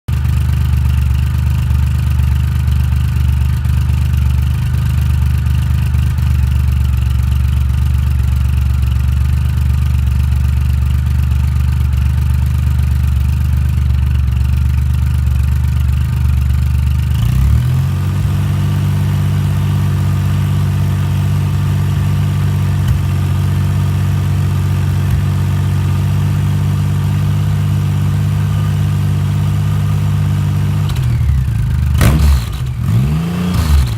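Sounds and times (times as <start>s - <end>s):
motorcycle engine idling: 0.1s - 33.9s
engine revving blip: 32.0s - 33.9s.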